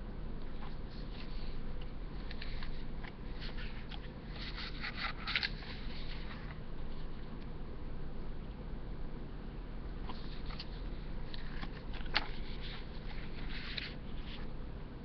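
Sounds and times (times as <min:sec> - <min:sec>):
paper pages rustling: 0:00.5 - 0:07.2, 0:10.0 - 0:14.5.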